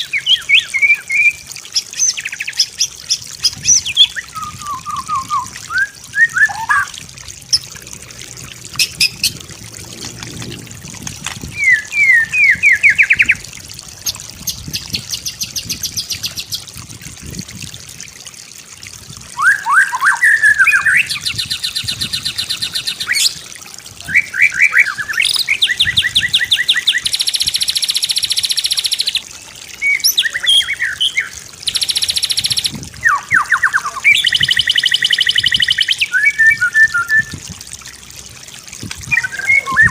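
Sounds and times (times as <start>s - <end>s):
songbird whistling and trilling: 0.0s - 6.9s, 11.5s - 13.4s, 19.4s - 23.4s, 24.0s - 29.2s, 29.8s - 37.4s, 39.0s - 39.9s.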